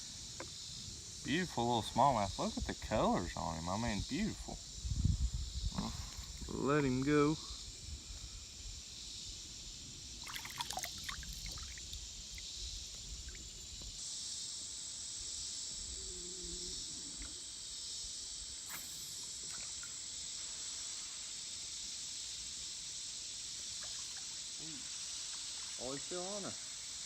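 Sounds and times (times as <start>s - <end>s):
high insect drone: 0.0s - 27.0s
splashes and knocks: 10.2s - 11.8s
water trickling against boat: 10.2s - 12.4s.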